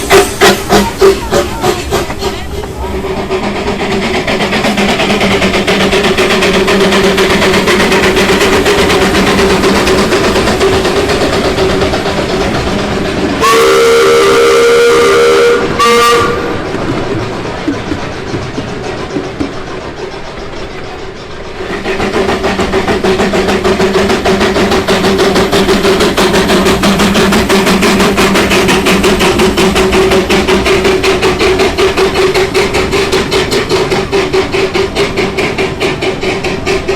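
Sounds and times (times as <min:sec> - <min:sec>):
train running on track: 0:00.0 - 0:36.9
train whistle blasts: 0:13.4 - 0:16.6.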